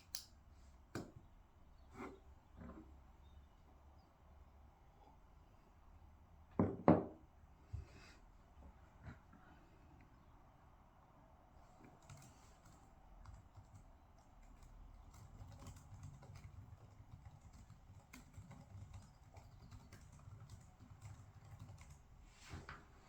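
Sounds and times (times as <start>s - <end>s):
low background hum: 0.0s - 23.0s
computer keyboard typing: 11.8s - 22.1s.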